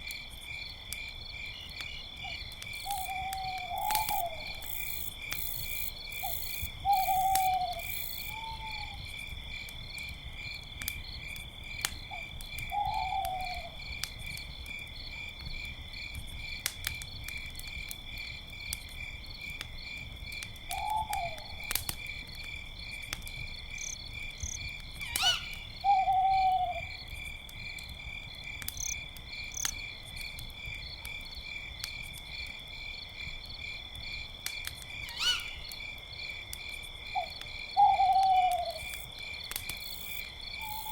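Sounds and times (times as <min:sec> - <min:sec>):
campfire crackling and popping: 0:00.0 - 0:08.4, 0:09.0 - 0:25.8, 0:26.8 - 0:40.9
crickets chirping: 0:00.1 - 0:40.9
owls hooting: 0:25.1 - 0:26.9, 0:35.1 - 0:35.6.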